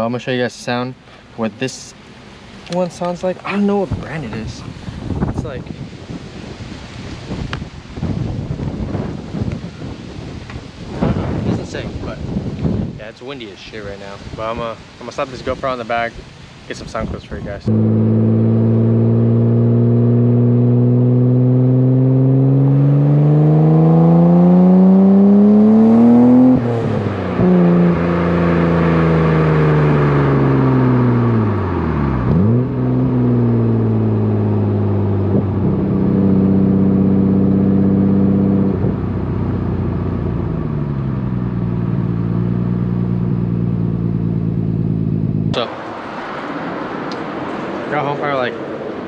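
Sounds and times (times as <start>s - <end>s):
car engine accelerating: 17.6s - 49.0s.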